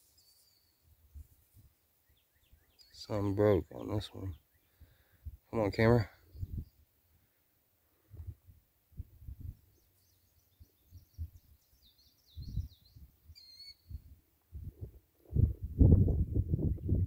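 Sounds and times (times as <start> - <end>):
songbirds chirping: 0.0 - 15.2
wind buffeting microphone: 6.2 - 6.8, 8.1 - 9.7, 12.3 - 13.2, 13.8 - 17.0
bird whistled call: 11.8 - 14.0.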